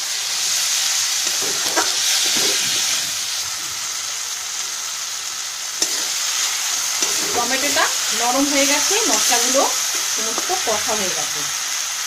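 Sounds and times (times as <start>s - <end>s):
masala sizzling in hot oil: 0.0s - 12.0s
spatula stirring and scraping: 5.8s - 10.6s.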